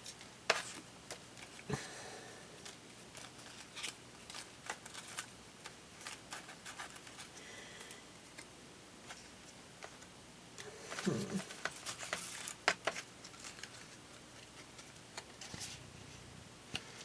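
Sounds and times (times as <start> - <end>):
paper rustling: 2.6 - 7.4, 10.7 - 15.8.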